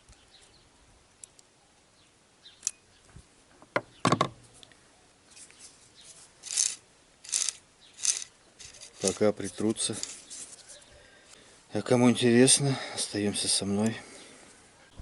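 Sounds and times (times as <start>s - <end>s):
scraping strokes: 5.3s - 10.9s
metal parts clicking: 6.4s - 10.5s.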